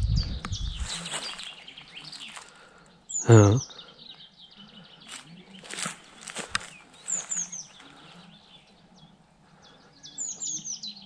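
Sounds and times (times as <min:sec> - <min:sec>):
songbird chirping: 0:00.0 - 0:11.0
footstep scuffs: 0:00.8 - 0:01.6, 0:05.1 - 0:07.9.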